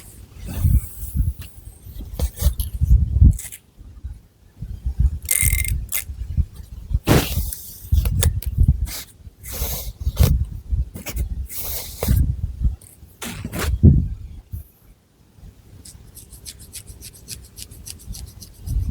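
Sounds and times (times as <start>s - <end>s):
fingernails scratching hair: 15.8s - 18.9s.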